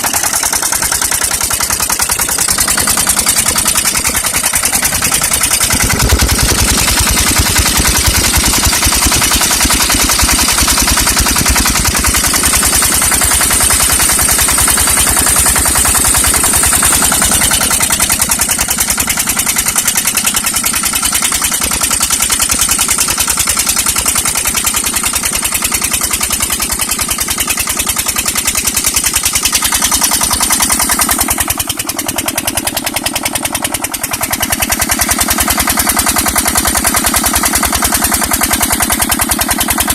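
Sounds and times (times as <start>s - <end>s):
diesel engine exhaust pulses: 0.0s - 23.8s.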